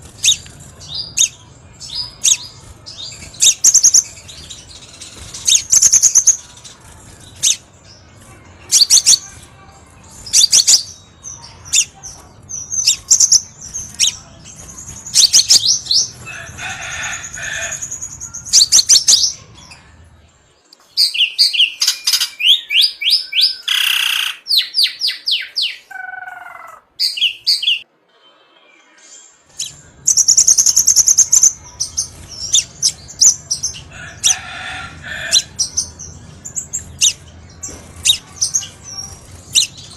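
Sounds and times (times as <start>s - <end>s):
bird chirps and trills: 0.0s - 20.2s, 29.5s - 39.9s.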